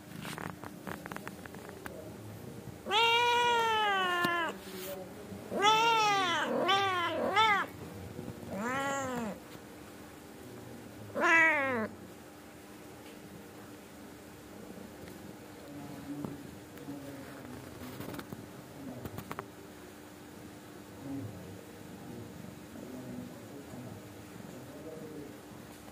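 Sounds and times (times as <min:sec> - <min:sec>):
cat meowing: 0:02.8 - 0:04.6, 0:05.5 - 0:07.8, 0:08.5 - 0:09.4, 0:11.1 - 0:11.9.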